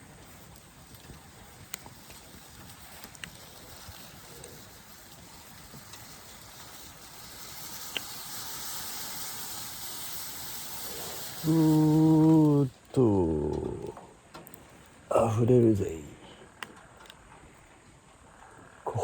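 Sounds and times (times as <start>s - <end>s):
campfire crackling: 0.0s - 19.0s
steam hissing: 1.9s - 13.9s
man speaking loudly: 11.4s - 14.0s, 15.1s - 16.3s.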